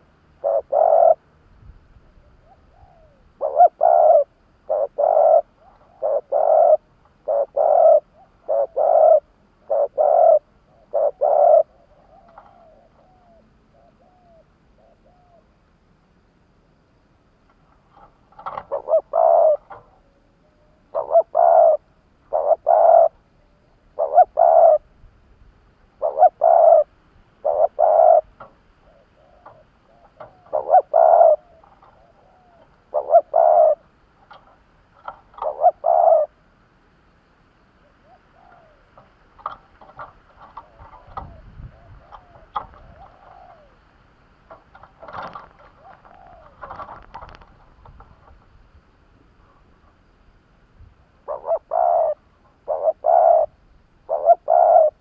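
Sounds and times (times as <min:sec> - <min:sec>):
dove cooing: 0:00.0 - 0:01.4, 0:02.0 - 0:15.6, 0:17.7 - 0:24.9, 0:25.9 - 0:36.5, 0:37.6 - 0:48.6, 0:49.4 - 0:50.0, 0:51.2 - 0:55.0
faint bird calls: 0:00.0 - 0:16.0, 0:17.5 - 0:50.4, 0:51.0 - 0:55.0.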